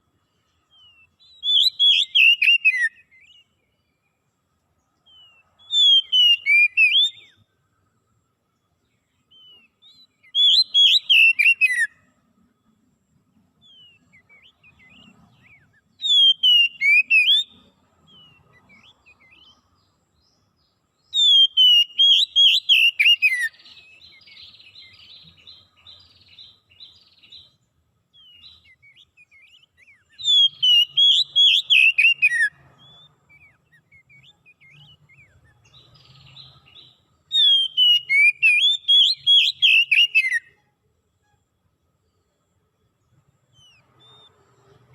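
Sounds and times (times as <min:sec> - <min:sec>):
soft bird twittering: 0:00.0 - 0:44.9
songbird whistled phrases: 0:00.7 - 0:03.5, 0:05.1 - 0:07.4, 0:09.3 - 0:12.0, 0:13.6 - 0:19.6, 0:21.1 - 0:27.5, 0:28.2 - 0:40.6.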